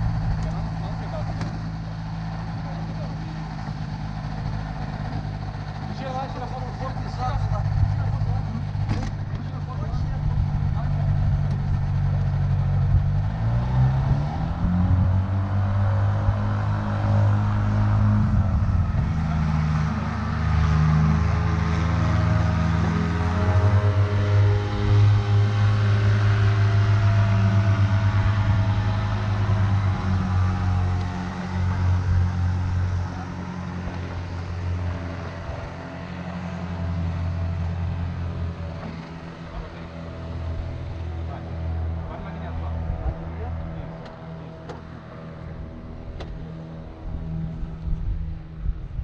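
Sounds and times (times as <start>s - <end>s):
aircraft engine running: 0.0s - 49.0s.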